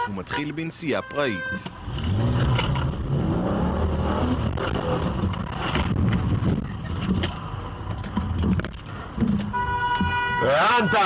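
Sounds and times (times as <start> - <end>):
road noise: 0.0 - 11.0
car engine revving: 1.7 - 9.2.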